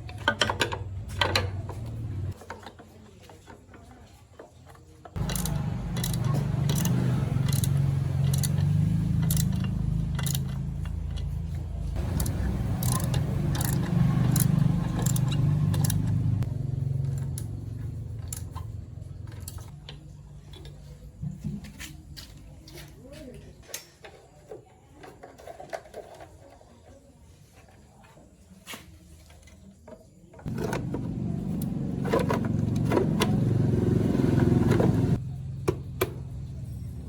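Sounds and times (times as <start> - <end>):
small engine running: 5.2 - 19.7, 30.4 - 37.0.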